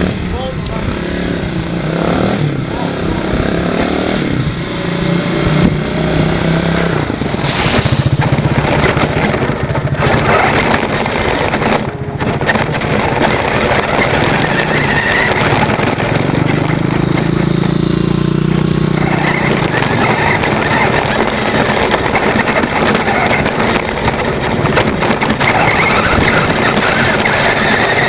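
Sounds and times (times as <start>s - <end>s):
motorcycle engine running: 0.0s - 28.0s
rattling of small toy car driving: 6.8s - 28.0s.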